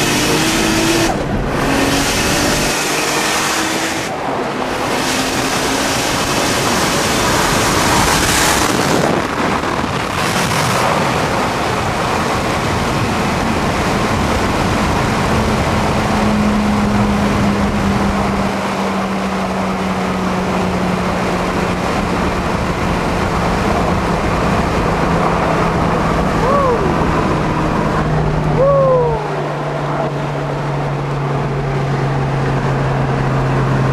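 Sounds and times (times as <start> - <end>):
low car engine drone: 0.0 - 33.9
wind and road rush: 0.0 - 33.9.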